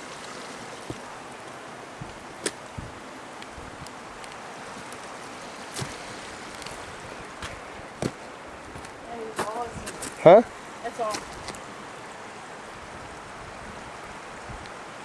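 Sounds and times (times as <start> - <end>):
sharp taps: 0.9 - 10.3.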